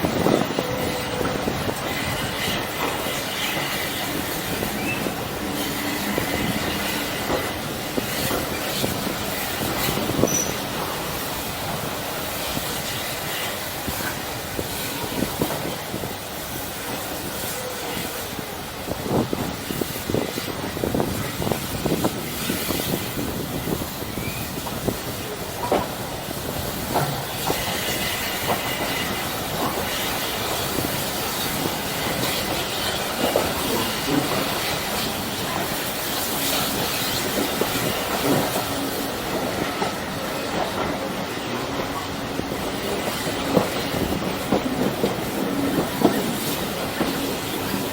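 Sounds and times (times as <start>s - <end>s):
train rumbling on track: 0.0s - 47.9s
faint high squeal: 10.2s - 10.6s.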